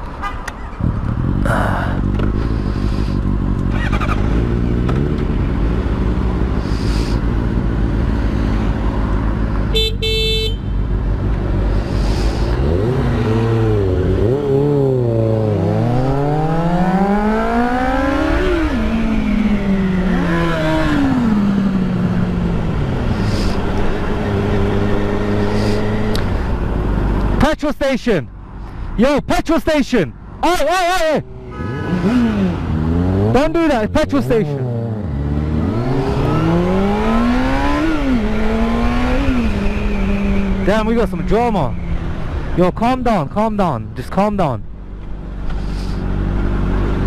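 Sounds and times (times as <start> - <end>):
motorcycle engine running: 0.8 - 16.1
horn honking: 9.7 - 10.9, 31.2 - 32.6.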